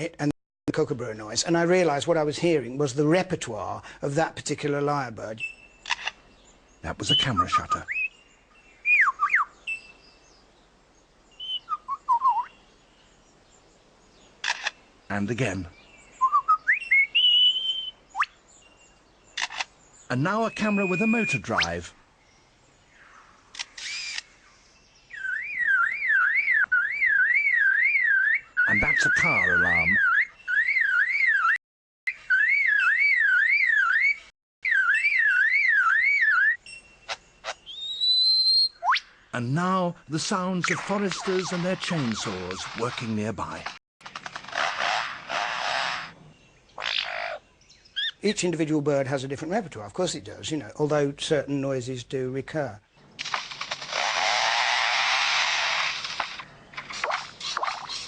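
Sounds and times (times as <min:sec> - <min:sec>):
steady bird whistle: 0:07.0 - 0:10.2, 0:11.3 - 0:12.7, 0:16.0 - 0:18.4, 0:20.4 - 0:21.8, 0:25.0 - 0:39.2
bird singing swooping whistles: 0:07.1 - 0:08.2, 0:08.8 - 0:10.0, 0:11.3 - 0:12.6, 0:16.1 - 0:18.4, 0:20.4 - 0:21.8, 0:25.0 - 0:39.2.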